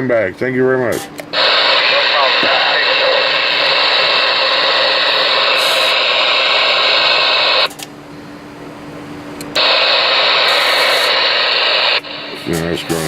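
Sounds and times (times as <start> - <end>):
radio static hissing: 1.3 - 7.7, 9.6 - 13.0
faint steady hum: 1.3 - 13.0.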